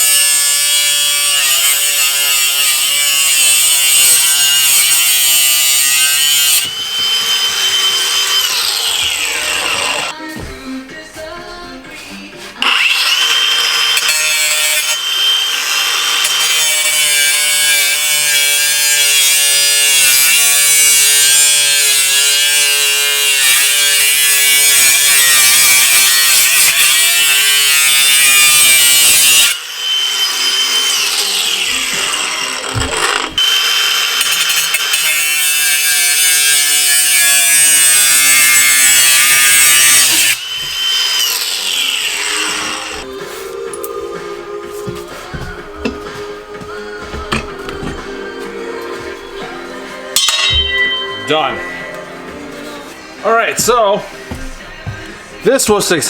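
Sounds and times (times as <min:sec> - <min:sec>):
angle grinder cutting metal: 0:00.0 - 0:10.2, 0:12.6 - 0:44.6, 0:45.3 - 0:55.0.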